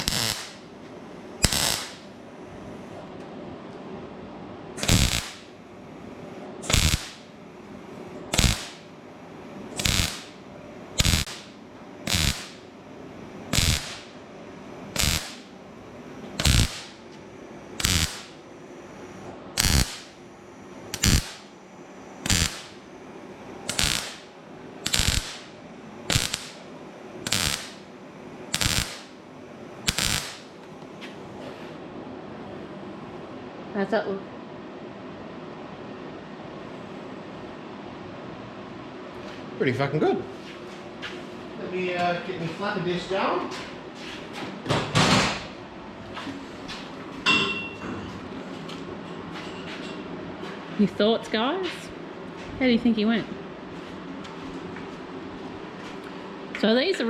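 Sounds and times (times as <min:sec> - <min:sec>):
welder crackling bursts: 0:00.0 - 0:00.7, 0:01.4 - 0:02.1, 0:04.8 - 0:05.6, 0:06.6 - 0:07.3, 0:08.3 - 0:09.0, 0:09.7 - 0:12.7, 0:13.5 - 0:14.2, 0:14.8 - 0:15.6, 0:16.4 - 0:17.1, 0:17.7 - 0:18.5, 0:19.1 - 0:20.2, 0:20.8 - 0:21.6, 0:22.2 - 0:22.9, 0:23.6 - 0:27.9, 0:28.5 - 0:29.2, 0:29.8 - 0:30.6.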